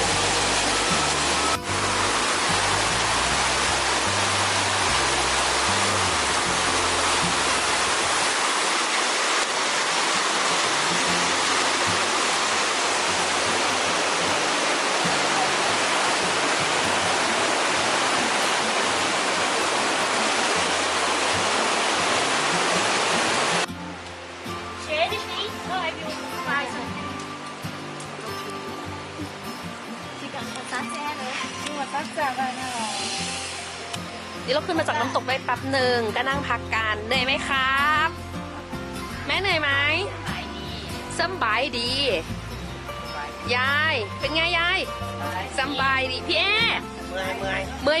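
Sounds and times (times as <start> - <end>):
waterfall rushing: 0.0 - 48.0
faint background music: 10.7 - 48.0.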